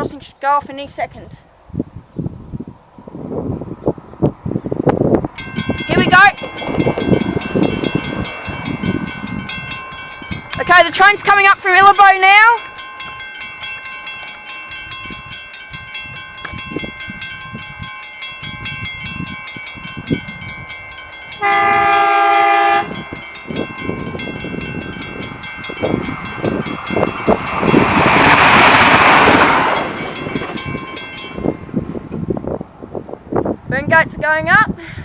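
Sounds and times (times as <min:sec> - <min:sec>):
train rumbling and wheels clacking: 0:04.2 - 0:33.3
level crossing bells ringing: 0:05.4 - 0:31.8
train horn: 0:21.4 - 0:23.2.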